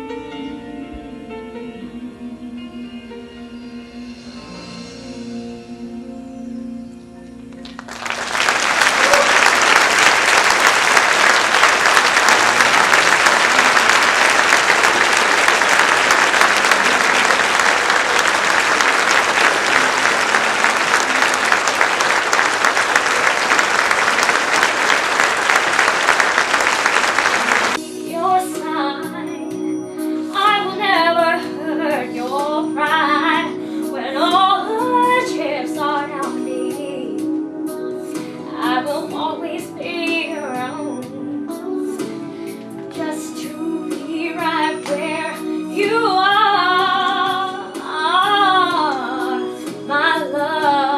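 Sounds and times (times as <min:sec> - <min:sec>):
sustained musical accompaniment: 0:00.0 - 0:50.9
audience applauding: 0:07.6 - 0:27.8.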